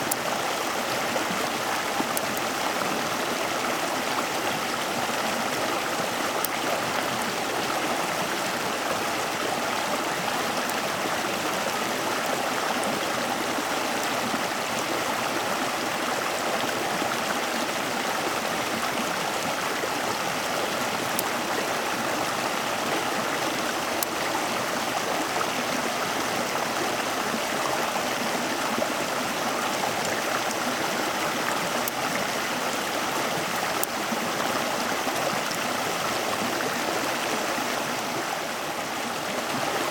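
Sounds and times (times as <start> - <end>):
stream water rushing: 0.0 - 39.9
faint clicks: 6.0 - 14.3, 22.8 - 24.7, 29.9 - 32.8, 33.5 - 34.1.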